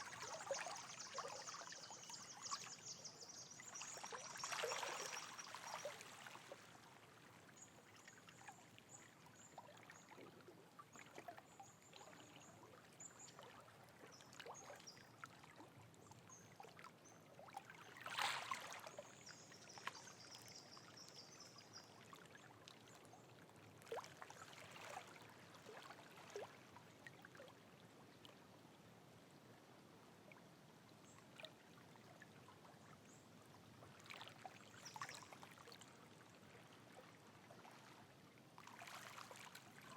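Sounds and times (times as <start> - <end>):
water trickling and dripping: 0.0 - 6.8, 17.6 - 23.0.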